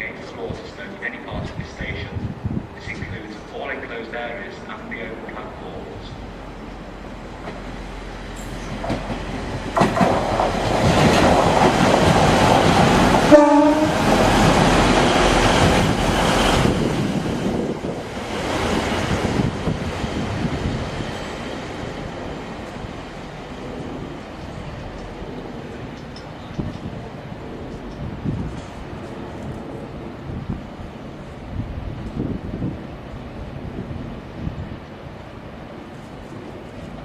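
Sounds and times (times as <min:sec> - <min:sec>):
train rumble and wheel noise: 0:00.0 - 0:37.0
train horn blast: 0:13.3 - 0:14.2.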